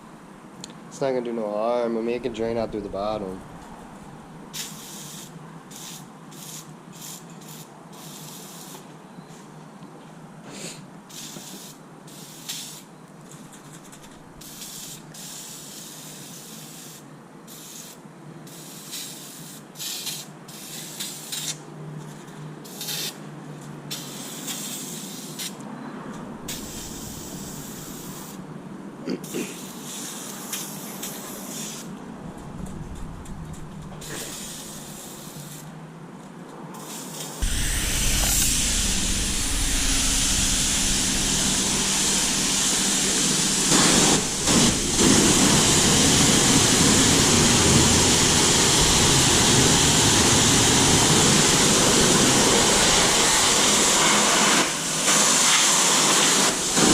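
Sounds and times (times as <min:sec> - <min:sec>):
water spraying on engine: 0:37.4 - 0:56.9.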